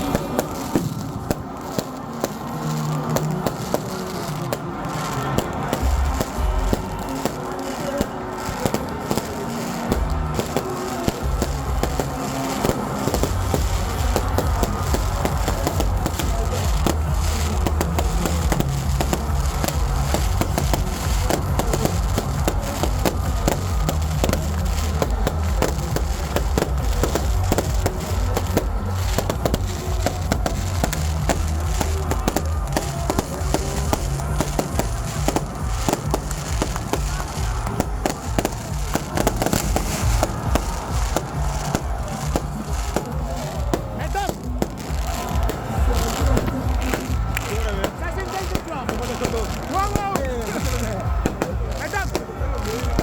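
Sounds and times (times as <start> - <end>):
fireworks banging and crackling: 0.0 - 53.0
loud music with heavy bass: 0.0 - 53.0.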